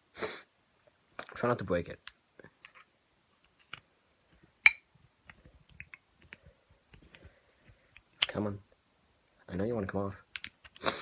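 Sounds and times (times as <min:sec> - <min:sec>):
small plastic clicks: 0:10.3 - 0:10.8.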